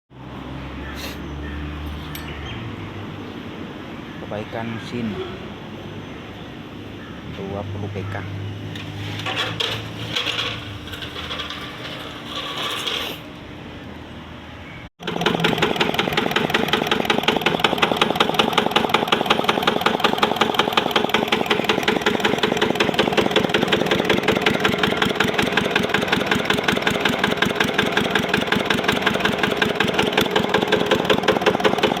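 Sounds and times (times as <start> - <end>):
engine running steadily: 15.0 - 32.0.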